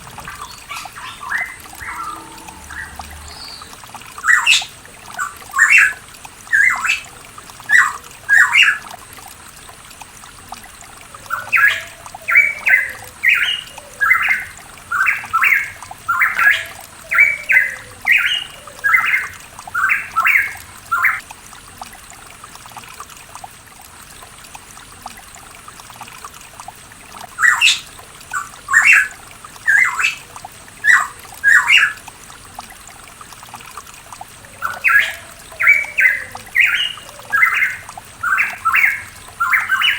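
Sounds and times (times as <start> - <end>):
bird calling: 0.0 - 4.7, 34.4 - 39.9.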